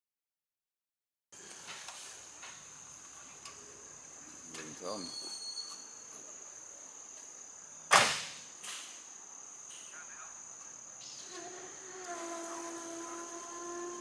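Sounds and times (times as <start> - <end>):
high-pitched insect drone: 3.6 - 7.9, 8.6 - 14.0
sharp loud crack: 7.9 - 8.4.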